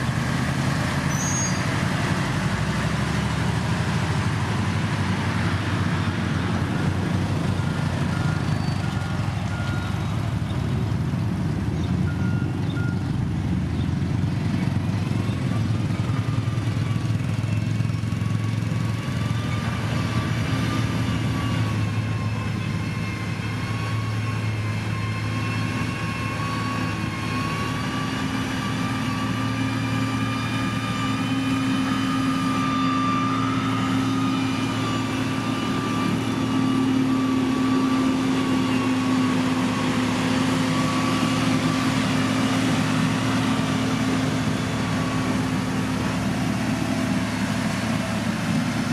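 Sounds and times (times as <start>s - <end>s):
diesel engine under load: 0.0s - 48.9s
high-pitched whine: 16.1s - 48.9s.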